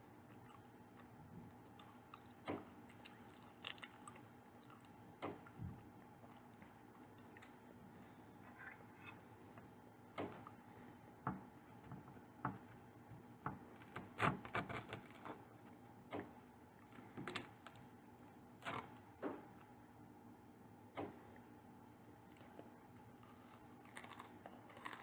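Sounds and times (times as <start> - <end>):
faint steady hum: 0.0 - 25.0
pastry crunching while eating: 0.1 - 8.2, 22.1 - 25.0.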